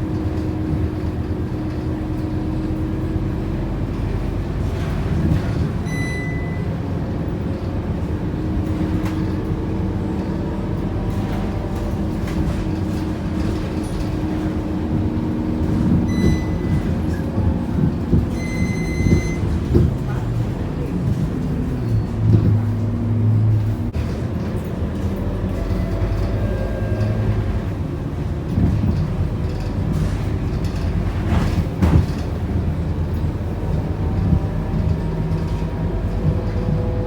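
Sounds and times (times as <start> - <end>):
bus engine drone with rattles: 0.0 - 37.0
short electronic beeps: 5.9 - 6.7, 16.1 - 16.9, 18.4 - 19.5.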